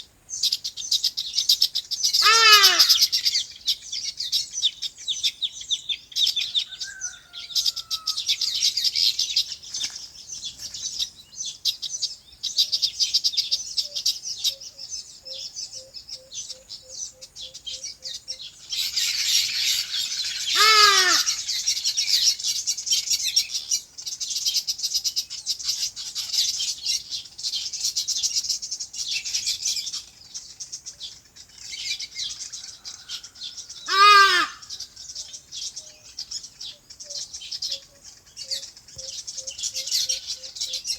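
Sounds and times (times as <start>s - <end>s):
small birds chirping: 0.0s - 40.9s
harsh calls of larger bird: 2.2s - 3.2s, 18.8s - 21.8s, 32.7s - 34.8s.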